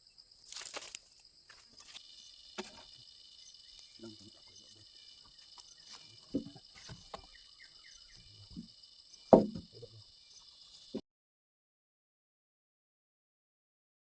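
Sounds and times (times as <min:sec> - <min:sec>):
faint chirps: 0:00.0 - 0:11.0
insects chirring: 0:00.0 - 0:11.0
dull knocks: 0:06.2 - 0:07.4, 0:09.3 - 0:09.9.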